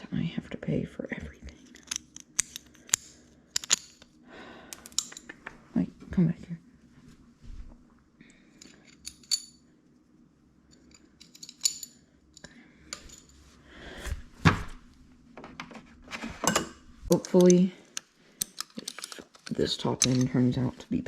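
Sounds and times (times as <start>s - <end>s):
metal tools clinking: 1.6s - 4.1s, 8.6s - 9.6s, 10.7s - 13.4s, 18.4s - 20.7s.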